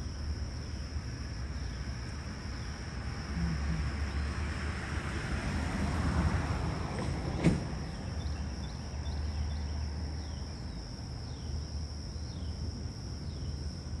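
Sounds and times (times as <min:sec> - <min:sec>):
high-pitched insect drone: 0:00.0 - 0:04.4.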